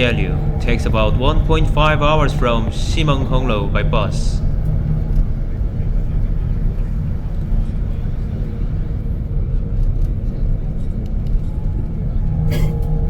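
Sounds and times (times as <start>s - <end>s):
bus engine and road rumble: 0.0s - 13.0s
faint hum: 0.0s - 13.0s.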